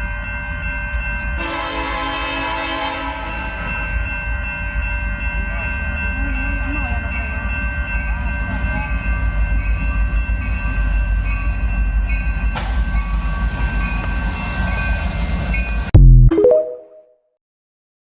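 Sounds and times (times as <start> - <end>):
train horn chord: 1.4 - 3.6.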